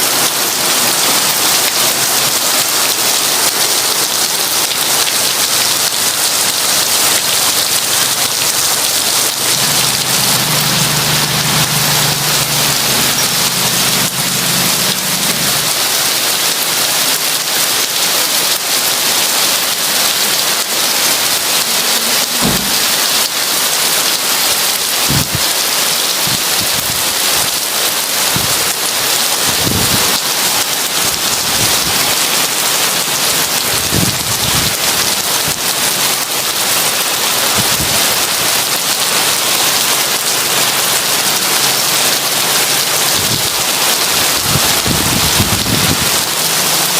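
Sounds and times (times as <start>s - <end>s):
heavy rain pouring: 0.0s - 46.9s.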